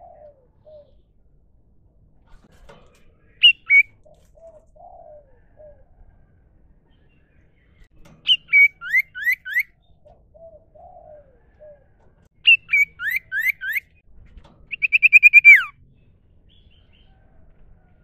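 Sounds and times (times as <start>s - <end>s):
bird singing whistles and trill: 3.4s - 3.9s, 8.2s - 9.8s, 12.4s - 14.0s, 14.7s - 15.8s.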